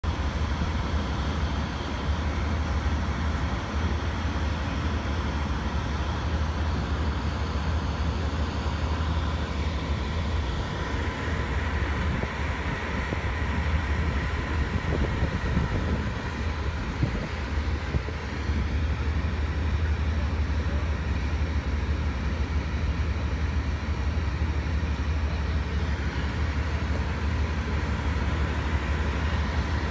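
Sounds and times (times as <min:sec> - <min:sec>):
idling train rumble: 0:00.0 - 0:29.9.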